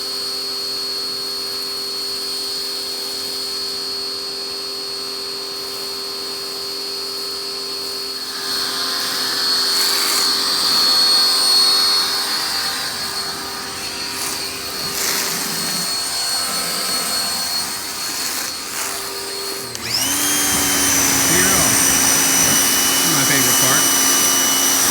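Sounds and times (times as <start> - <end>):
pressure washer motor whine: 8.0 - 24.9.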